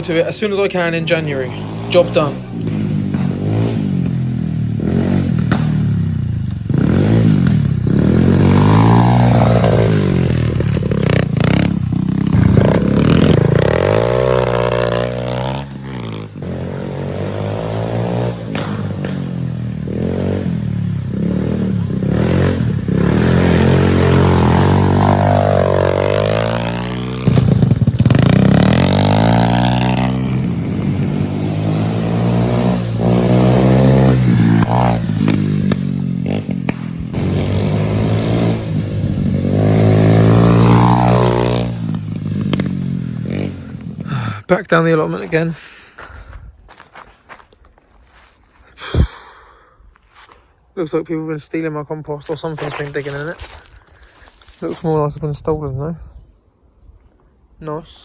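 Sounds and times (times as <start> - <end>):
motorbike engine revving: 0.0 - 44.4.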